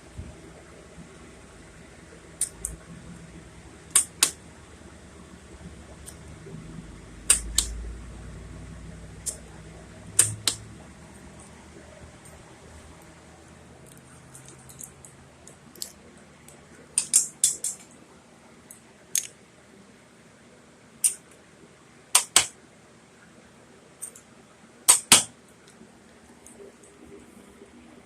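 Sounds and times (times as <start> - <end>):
sharp metallic clicks: 3.9 - 4.4, 7.2 - 7.8, 10.2 - 10.6, 17.0 - 17.9, 18.7 - 19.3, 21.0 - 21.3, 22.2 - 22.5, 24.9 - 25.3.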